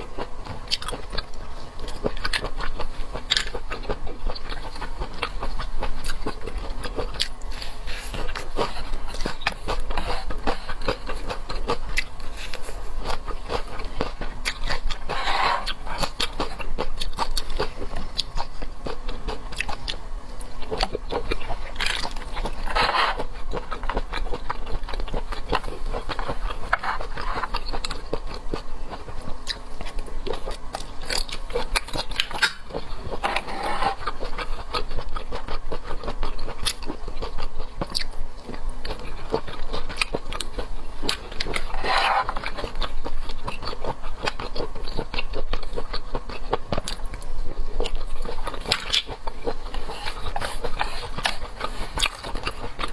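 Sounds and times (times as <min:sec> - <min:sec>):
person chewing and biting: 0:00.0 - 0:52.9.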